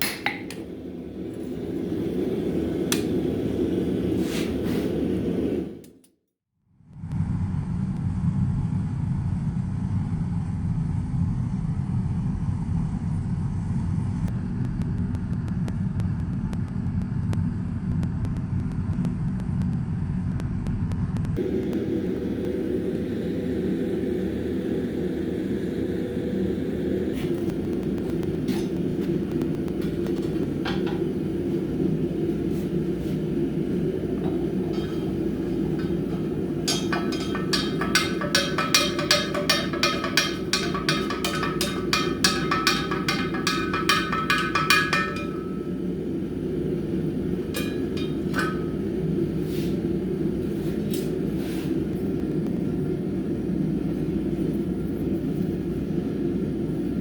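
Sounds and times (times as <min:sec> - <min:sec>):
hammer ringing on anvil: 0:34.2 - 0:45.9, 0:47.6 - 0:49.0.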